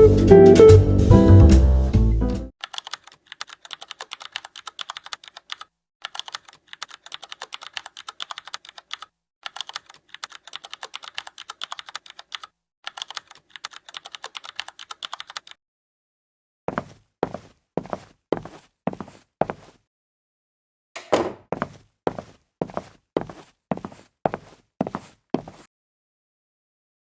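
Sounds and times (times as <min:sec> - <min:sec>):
rapid even clicking: 0:02.6 - 0:15.6.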